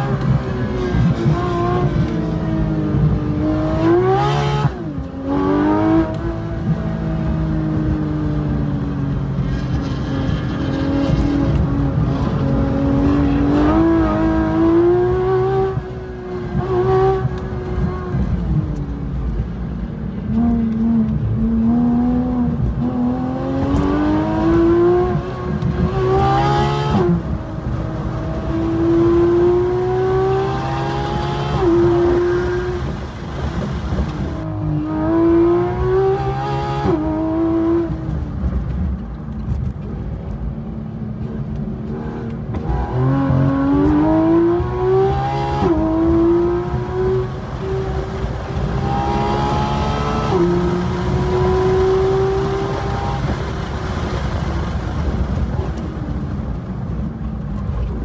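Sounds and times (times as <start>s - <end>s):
road and wind noise: 0.0s - 58.0s
racing car engine accelerating: 41.9s - 53.8s.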